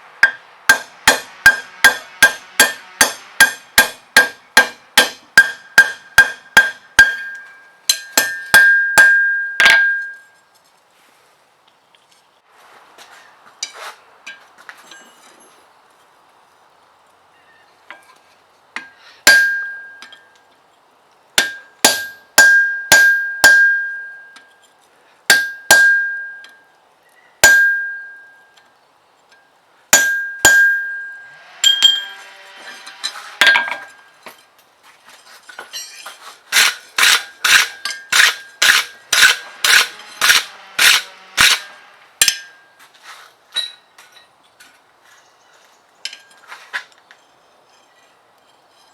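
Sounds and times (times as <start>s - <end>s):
hammer ringing on anvil: 0.2s - 10.4s, 18.8s - 20.3s, 21.4s - 24.5s, 25.3s - 26.6s, 27.4s - 28.5s, 30.0s - 32.2s, 42.2s - 42.8s.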